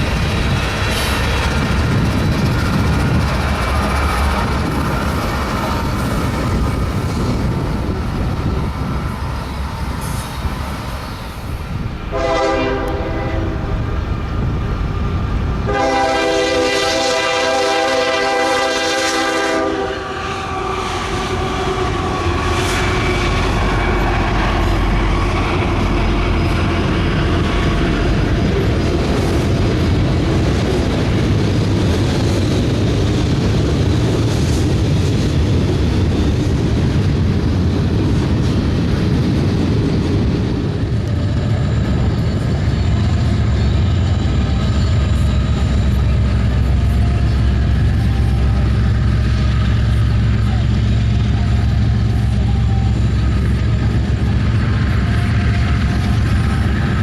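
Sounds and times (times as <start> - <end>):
train rumbling by: 0.0 - 57.0
locomotive air horn blasts: 12.1 - 13.7, 15.7 - 24.0.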